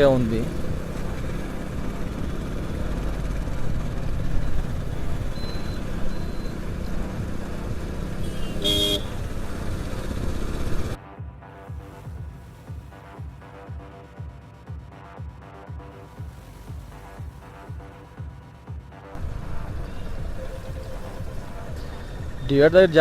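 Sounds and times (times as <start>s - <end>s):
wind and road noise: 0.0s - 11.0s, 19.1s - 23.0s
vehicle horn honking: 4.4s - 11.0s.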